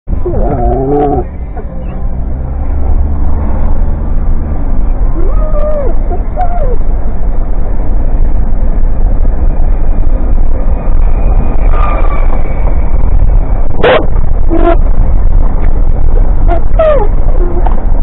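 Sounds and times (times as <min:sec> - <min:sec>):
loud steady low rumble: 0:00.1 - 0:18.0
dog barking: 0:13.8 - 0:14.1
dog yipping: 0:16.5 - 0:17.1.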